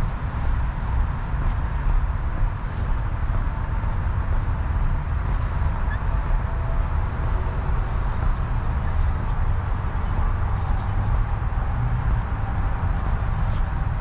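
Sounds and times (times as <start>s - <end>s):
footsteps on pavement: 0.0s - 5.5s.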